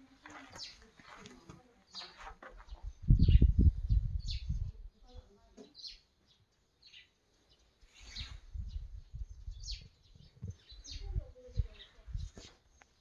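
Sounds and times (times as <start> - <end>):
birds chirping: 0.0 - 13.0
low rumble on microphone: 2.8 - 5.2.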